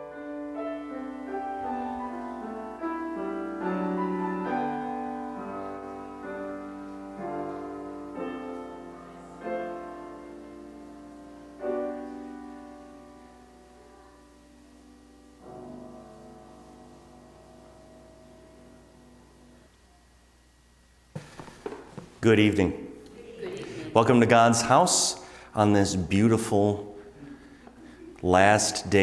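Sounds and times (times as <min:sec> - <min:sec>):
slow piano chords: 0:00.0 - 0:20.4.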